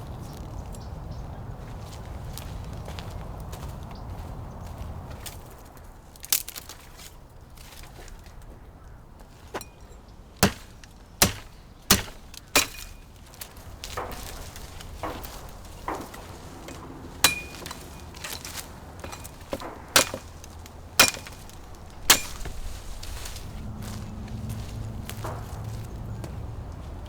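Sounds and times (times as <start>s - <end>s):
axe chopping wood: 10.4s - 22.9s.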